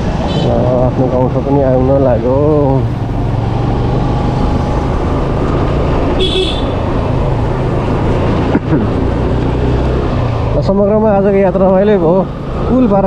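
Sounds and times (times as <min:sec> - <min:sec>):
wind and road noise: 0:00.0 - 0:13.0
vehicle horn toot: 0:06.2 - 0:06.8.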